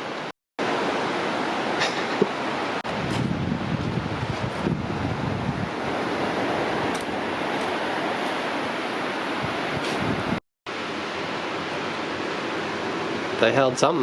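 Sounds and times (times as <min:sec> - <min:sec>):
ocean surf rushing: 0:00.0 - 0:14.0
wind buffeting microphone: 0:02.9 - 0:08.6, 0:09.2 - 0:10.4.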